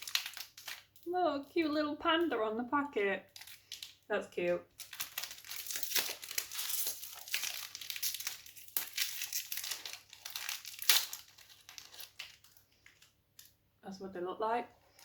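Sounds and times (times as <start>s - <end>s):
plastic snack packet crinkling: 0.0s - 2.3s, 3.2s - 13.6s, 14.8s - 15.0s.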